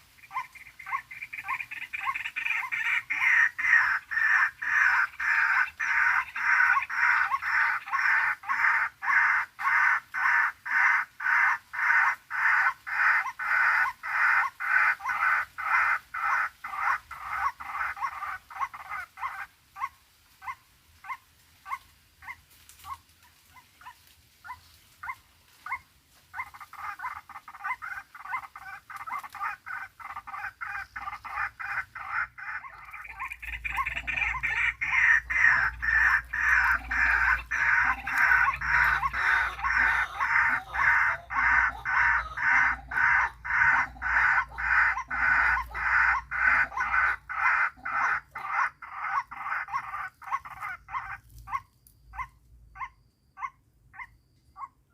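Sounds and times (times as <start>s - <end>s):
waterhen croaking calls: 0.0s - 54.7s.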